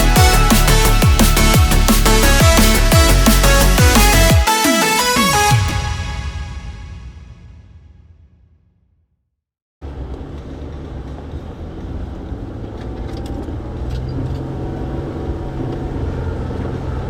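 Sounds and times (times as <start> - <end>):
vehicle engine low drone: 9.8 - 17.0.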